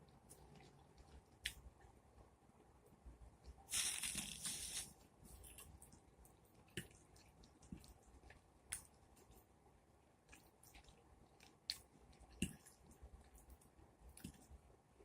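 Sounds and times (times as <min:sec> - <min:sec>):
wet mouth eating sounds: 0:03.7 - 0:04.9
chewing clicks and smacks: 0:10.3 - 0:14.5.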